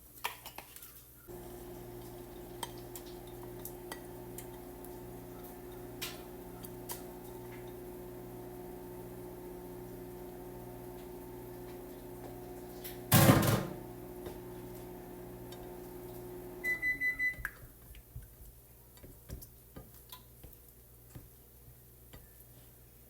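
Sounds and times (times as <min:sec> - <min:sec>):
microwave timer beeps: 0:01.3 - 0:17.6
microwave oven humming: 0:01.3 - 0:17.7.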